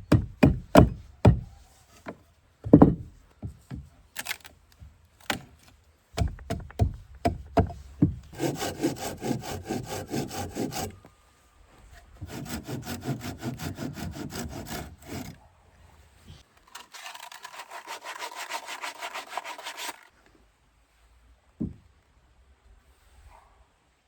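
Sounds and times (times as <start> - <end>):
knock: 2.7 - 3.1, 21.6 - 21.8
hand saw cutting wood: 6.2 - 11.0, 12.2 - 15.4, 16.8 - 20.1.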